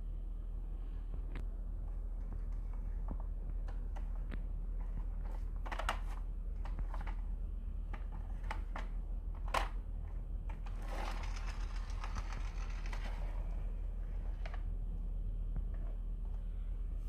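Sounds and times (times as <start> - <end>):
steady low hum: 0.0 - 17.0
marbles rattling down wooden tracks: 10.7 - 13.4.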